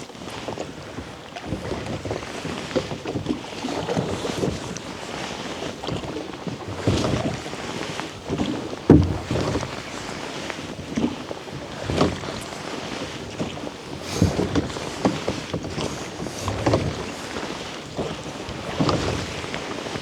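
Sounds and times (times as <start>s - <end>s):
oars knocking: 8.9s - 9.9s
water sloshing: 8.9s - 10.0s
oar strokes splashing: 8.9s - 10.1s
wind on microphone: 9.0s - 10.0s.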